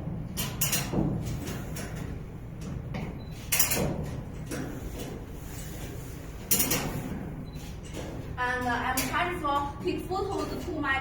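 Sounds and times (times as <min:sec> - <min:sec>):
parts knocking and clattering: 0:00.0 - 0:05.3, 0:06.4 - 0:09.6.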